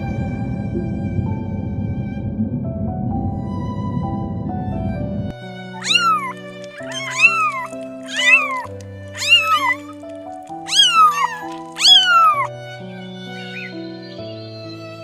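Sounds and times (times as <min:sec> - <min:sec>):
soft background music: 0:00.0 - 0:15.0
cat meowing: 0:05.8 - 0:12.5, 0:13.2 - 0:13.8.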